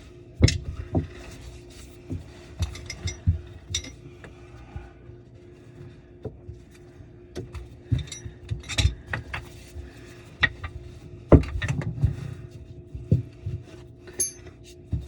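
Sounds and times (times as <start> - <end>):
faint steady hum: 0.0 - 15.0
tools clinking and knocking: 2.6 - 4.0, 14.1 - 14.5.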